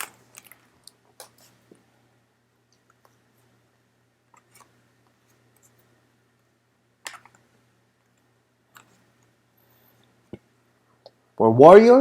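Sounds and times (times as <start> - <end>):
wrapper crinkle: 0.0 - 1.3.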